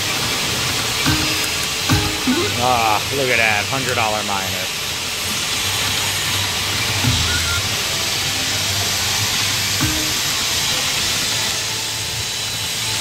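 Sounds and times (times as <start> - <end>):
slot machine tones: 1.1 - 3.0.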